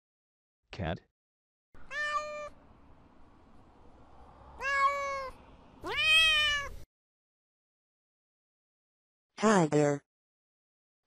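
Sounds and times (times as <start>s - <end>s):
cat meowing: 1.8s - 2.6s, 4.6s - 6.8s.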